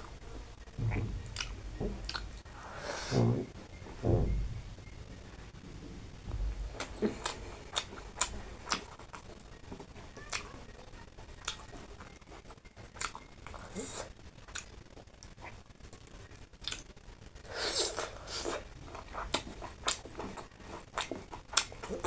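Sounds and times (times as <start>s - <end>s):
person chewing with lip smacks: 1.2s - 2.4s, 6.8s - 10.5s, 11.4s - 12.1s, 12.8s - 16.0s, 16.6s - 16.9s, 17.6s - 22.0s.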